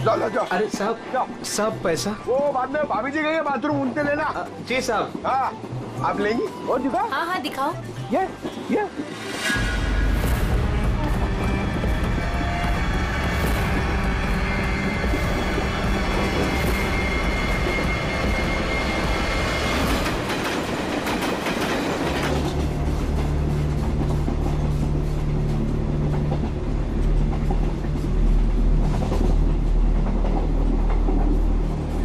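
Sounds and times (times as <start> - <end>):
train rumble inside coach: 0.0 - 32.0
wheels clacking on rail joints: 11.6 - 32.0.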